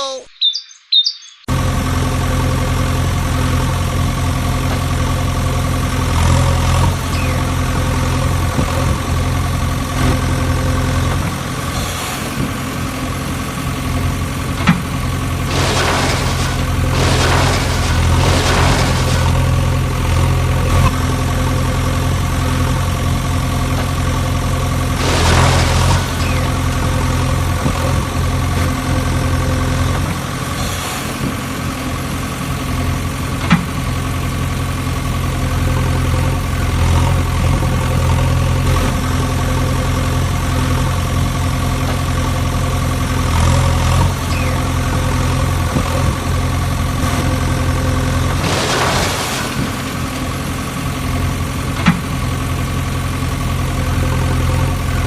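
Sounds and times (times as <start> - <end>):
engine idling: 12.5 - 55.0.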